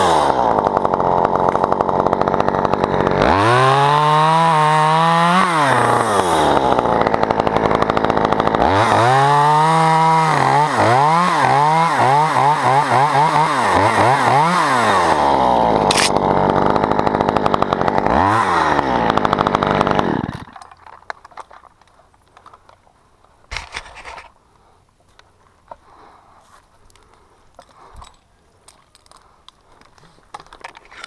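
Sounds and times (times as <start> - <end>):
chainsaw revving: 0.0 - 21.6.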